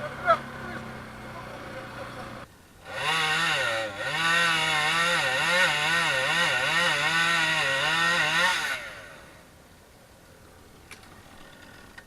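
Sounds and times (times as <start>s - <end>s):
atv engine revving: 0.0s - 9.4s.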